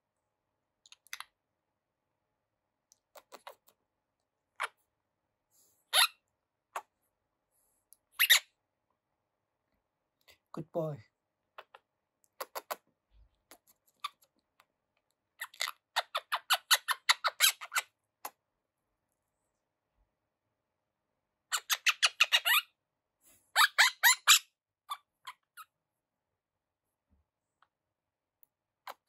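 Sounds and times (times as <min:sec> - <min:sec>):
parakeet chattering: 0:03.1 - 0:03.7, 0:04.6 - 0:04.8, 0:05.9 - 0:06.2, 0:08.2 - 0:08.4, 0:11.5 - 0:12.8, 0:15.4 - 0:18.4, 0:21.5 - 0:22.7, 0:23.6 - 0:25.7.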